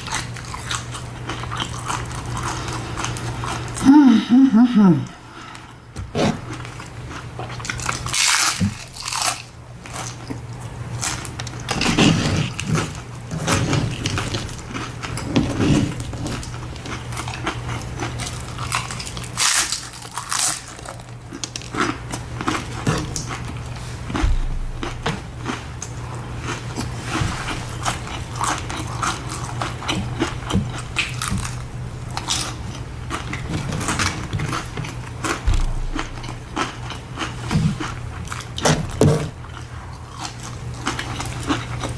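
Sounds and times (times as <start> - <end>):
crunching bites and chewing: 0.0 - 3.8, 5.5 - 41.9
low hum: 22.2 - 41.9.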